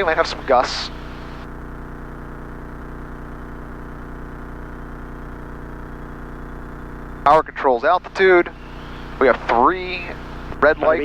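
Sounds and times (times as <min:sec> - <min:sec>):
propeller plane engine droning: 0:00.0 - 0:01.5, 0:07.0 - 0:11.0.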